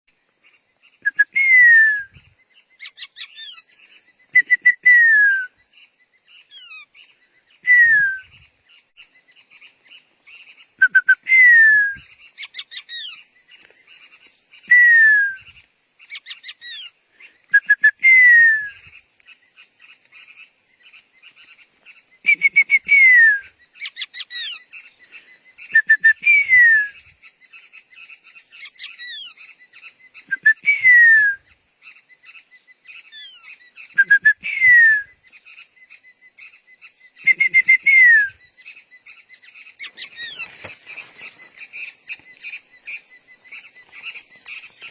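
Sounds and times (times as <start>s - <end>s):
bird call with downward whistle: 1.0s - 2.3s, 4.3s - 5.6s, 7.6s - 8.4s, 10.8s - 13.1s, 14.6s - 15.6s, 17.5s - 18.9s, 22.2s - 24.6s, 25.6s - 27.1s, 30.2s - 31.6s, 33.0s - 35.2s, 37.2s - 38.4s.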